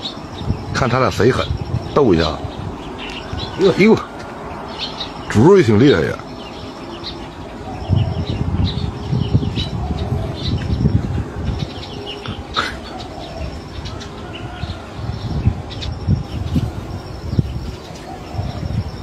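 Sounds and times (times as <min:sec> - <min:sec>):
small birds chirping: 0:00.0 - 0:19.0
low rumble on microphone: 0:00.3 - 0:04.2, 0:07.5 - 0:12.7, 0:13.4 - 0:19.0.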